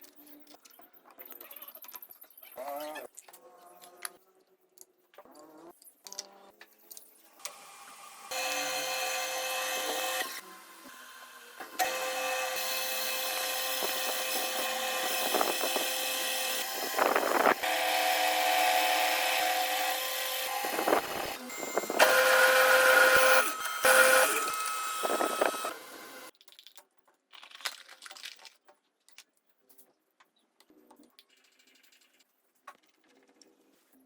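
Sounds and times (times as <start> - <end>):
electric power tool motor: 7.4 - 26.3.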